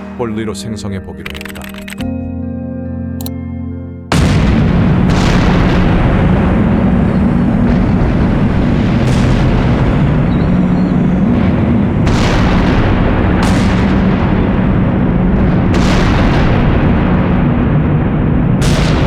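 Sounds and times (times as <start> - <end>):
crackling bursts: 1.2 - 2.0, 4.1 - 19.0
dense rumble: 4.1 - 19.0.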